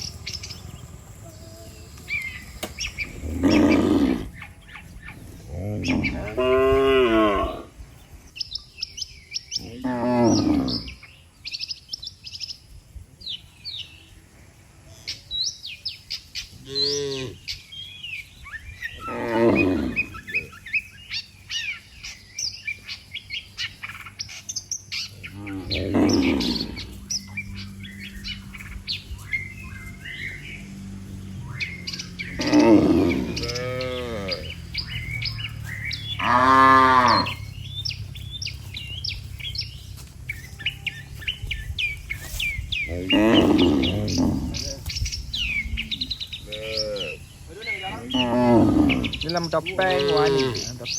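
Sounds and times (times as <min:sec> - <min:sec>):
birds chirping: 0:00.0 - 0:50.9
cattle mooing: 0:01.2 - 0:04.5, 0:05.4 - 0:07.7, 0:09.7 - 0:11.0, 0:16.6 - 0:17.4, 0:19.0 - 0:20.5, 0:25.1 - 0:39.7, 0:40.4 - 0:47.2, 0:47.8 - 0:50.8
low hum: 0:24.9 - 0:46.5.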